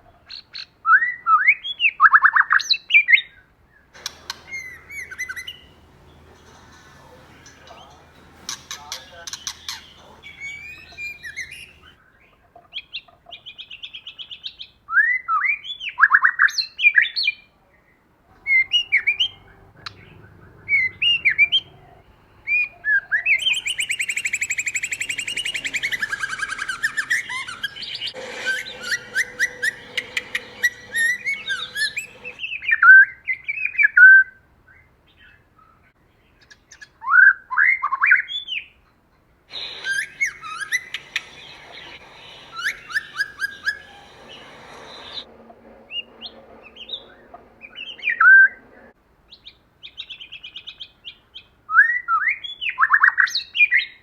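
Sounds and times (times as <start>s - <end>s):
bird singing whistles and trills: 4.0s - 11.9s, 22.5s - 32.4s, 39.5s - 45.3s.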